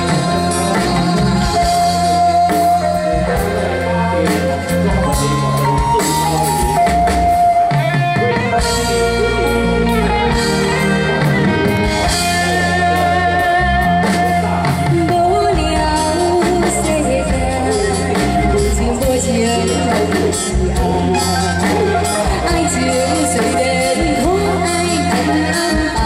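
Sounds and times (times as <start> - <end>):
bass: 0.0 - 26.0
held lead melody: 0.0 - 26.0
steady drum beat: 0.0 - 26.0.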